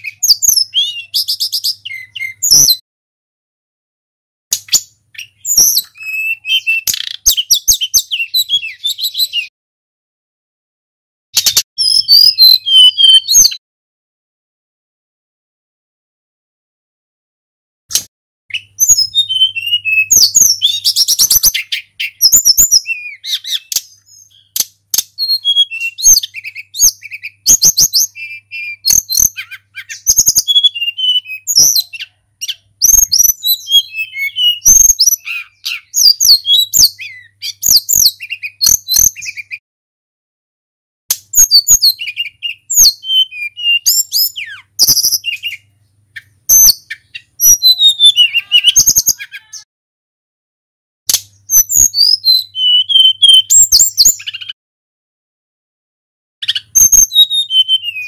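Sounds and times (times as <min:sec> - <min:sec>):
bird singing whistled phrases: 0:00.0 - 0:02.8, 0:04.6 - 0:09.5, 0:11.4 - 0:13.6, 0:18.5 - 0:39.6, 0:41.3 - 0:49.7, 0:51.4 - 0:54.6, 0:56.4 - 0:58.0.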